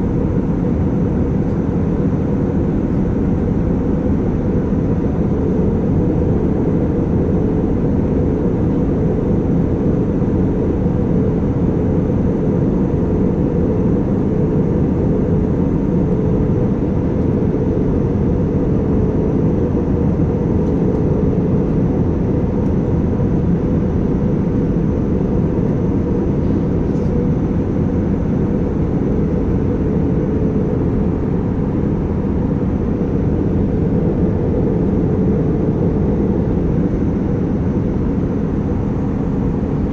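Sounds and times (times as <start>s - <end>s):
airliner cabin drone: 0.0s - 39.9s.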